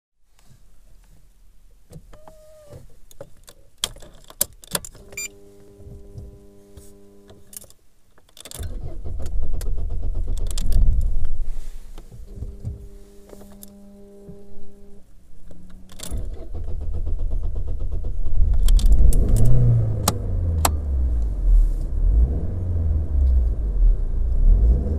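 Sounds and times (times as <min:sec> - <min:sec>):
engine cranking rumble: 0:08.6 - 0:11.4, 0:15.8 - 0:24.9.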